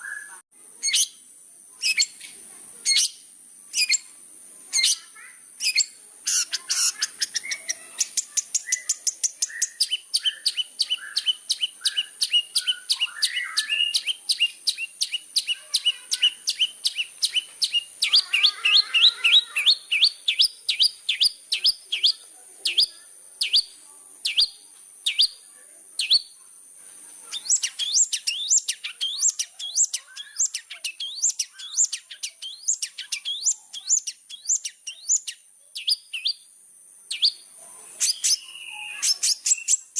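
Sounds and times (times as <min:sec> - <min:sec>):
shrike singing sharp chips: 0:00.0 - 0:25.4, 0:26.0 - 0:26.4, 0:27.3 - 0:36.5, 0:37.1 - 0:39.9.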